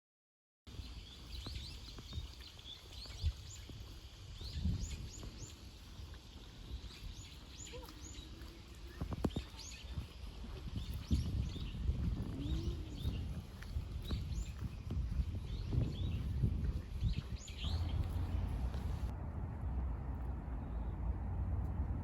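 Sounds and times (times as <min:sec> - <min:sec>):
small birds chirping: 0:00.7 - 0:19.1
low outdoor rumble: 0:17.5 - 0:22.0.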